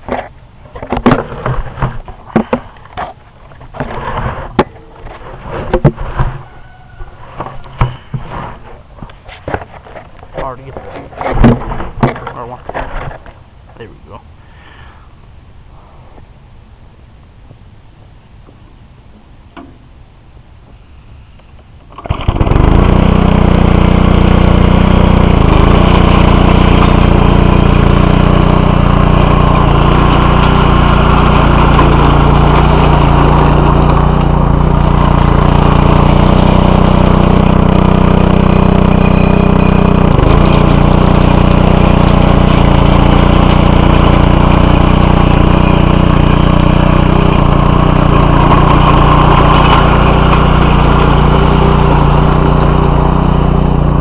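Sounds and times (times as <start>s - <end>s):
small engine running loudly: 22.0s - 54.0s.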